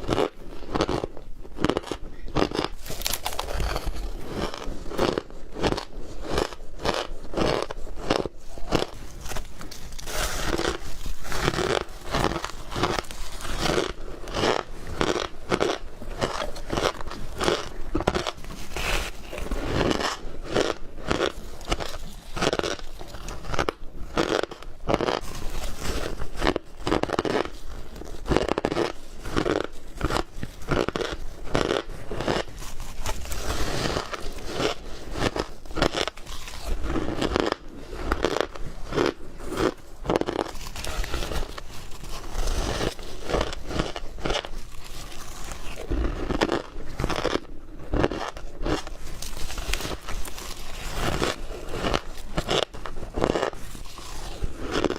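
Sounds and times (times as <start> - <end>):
ice being chewed: 0.0 - 54.9.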